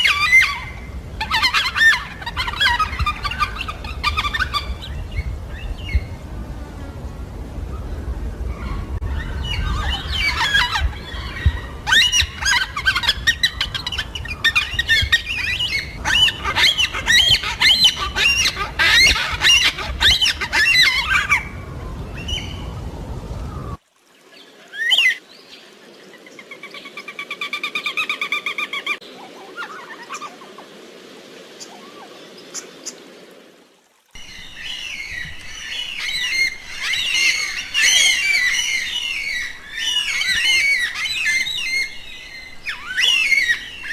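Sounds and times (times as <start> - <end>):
cockatoos calling and squawking: 0.0 - 5.3, 8.5 - 22.6, 34.2 - 43.9.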